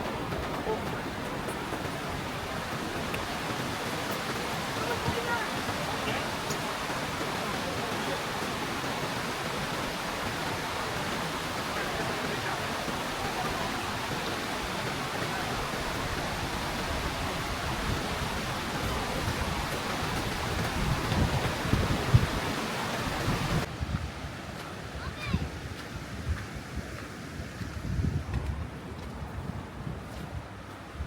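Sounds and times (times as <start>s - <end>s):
waterfall roaring: 0.0s - 23.7s.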